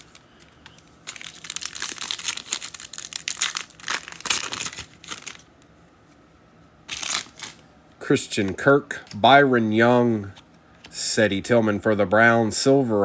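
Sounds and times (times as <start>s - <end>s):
foil wrapper tearing and crinkling: 0.0s - 5.5s, 6.9s - 7.6s.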